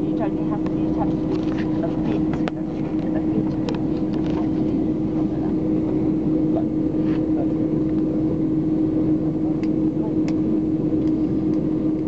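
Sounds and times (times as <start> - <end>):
airliner cabin engine hum: 0.0 - 12.0.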